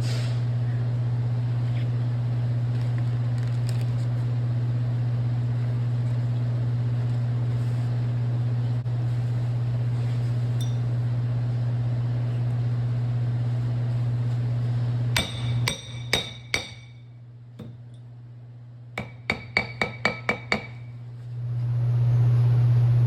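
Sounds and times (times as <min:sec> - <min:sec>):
steady low hum: 0:00.0 - 0:23.0
hammer striking metal: 0:15.2 - 0:17.8, 0:19.0 - 0:20.9.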